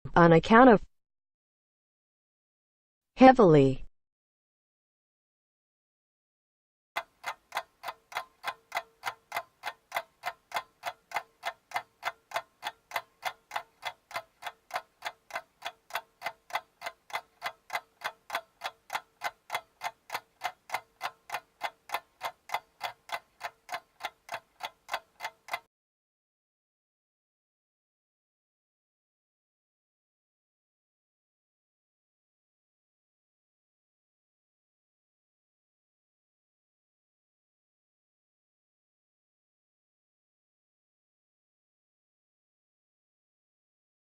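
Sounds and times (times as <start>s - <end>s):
clock ticking: 7.0s - 25.7s.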